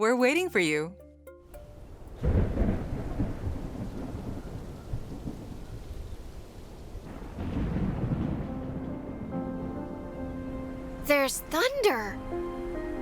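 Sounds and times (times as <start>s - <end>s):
thunder rumbling: 2.2s - 11.1s.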